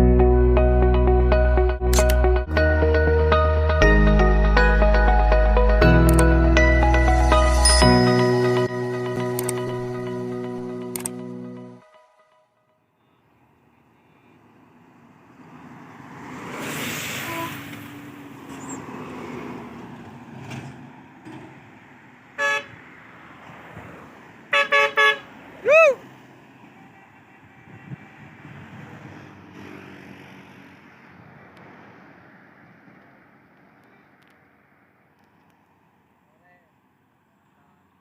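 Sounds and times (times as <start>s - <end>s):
vehicle passing: 13.4s - 38.0s
vehicle horn toots: 17.2s - 17.8s, 22.4s - 22.8s, 24.5s - 25.3s.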